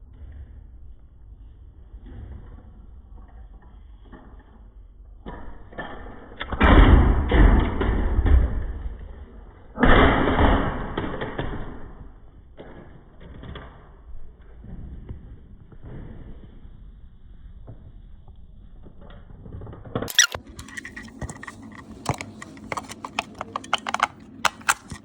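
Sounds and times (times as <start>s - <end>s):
plastic toy handled thumps and rustling: 20.1s - 25.0s.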